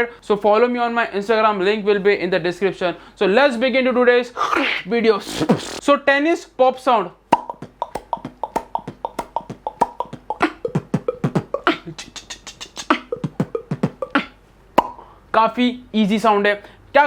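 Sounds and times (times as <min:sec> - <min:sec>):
beatbox mouth pops: 0:05.2 - 0:05.8, 0:07.3 - 0:15.1.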